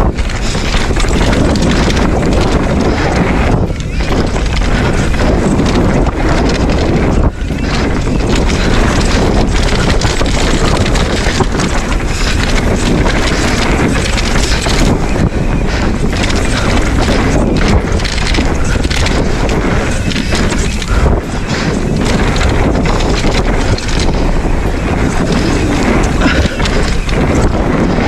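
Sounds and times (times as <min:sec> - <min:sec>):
bike rattling over bumps: 0:00.0 - 0:28.0
bike tyres rolling over dirt: 0:00.0 - 0:28.0
wind buffeting microphone: 0:00.0 - 0:28.0.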